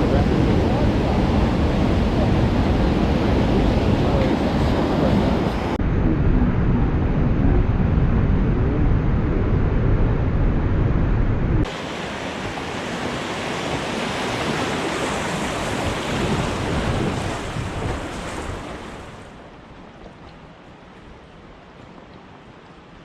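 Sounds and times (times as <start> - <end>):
wind buffeting microphone: 0.0 - 23.0
river rapids rushing: 11.7 - 19.5.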